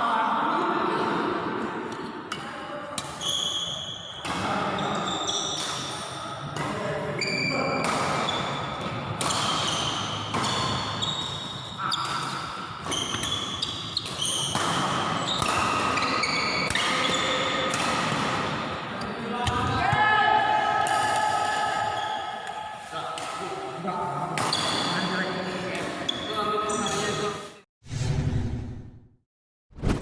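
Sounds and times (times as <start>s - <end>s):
shoes squeaking on court floor: 3.1s - 5.9s, 9.3s - 17.4s, 26.0s - 27.5s
racket hitting shuttlecock: 7.8s - 18.8s, 24.4s - 24.8s.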